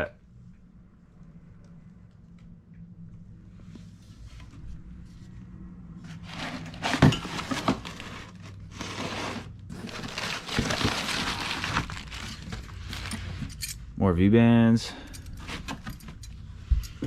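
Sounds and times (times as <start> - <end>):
low steady hum: 0.0 - 17.0
packing material crinkling: 6.2 - 13.3.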